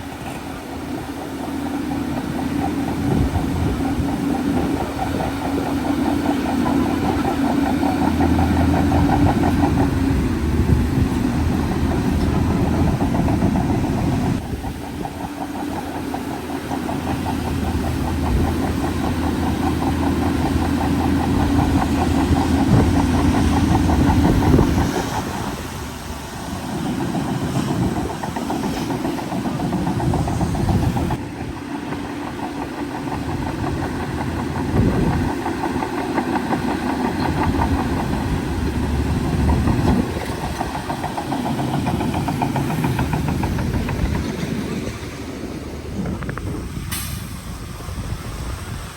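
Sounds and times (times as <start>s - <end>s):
bulldozer diesel engine running: 0.0s - 48.9s.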